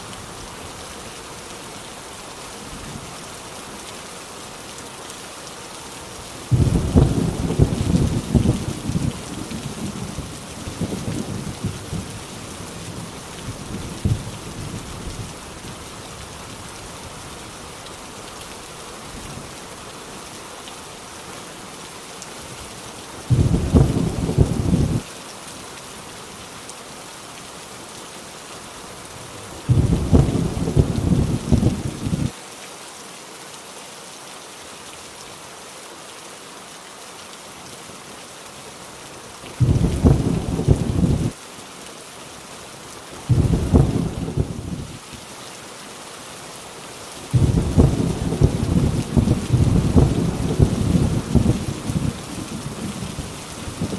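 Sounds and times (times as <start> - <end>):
heavy rain on a tin roof: 0.0 - 53.9
thunder rumbling: 6.5 - 14.4, 23.3 - 25.0, 29.7 - 32.3, 39.6 - 41.4, 43.3 - 44.9, 47.3 - 53.9.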